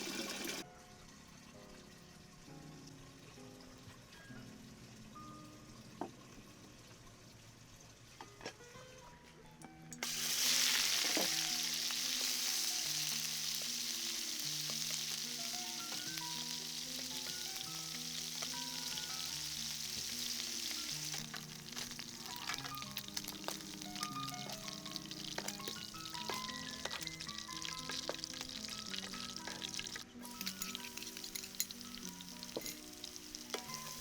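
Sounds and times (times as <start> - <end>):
soft background music: 0.0 - 34.0
food frying in hot oil: 10.0 - 34.0.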